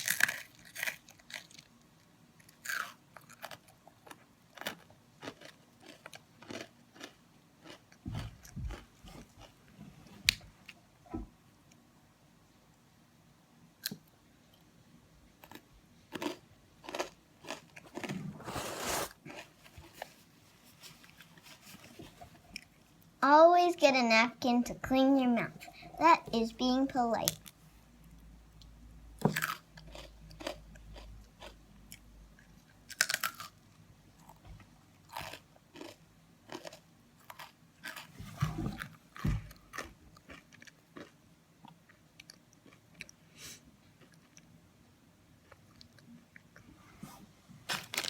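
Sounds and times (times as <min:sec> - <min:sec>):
crunchy cookie being chewed: 0:00.0 - 0:09.6, 0:15.4 - 0:20.2, 0:29.3 - 0:43.3, 0:43.9 - 0:44.5, 0:45.4 - 0:46.7.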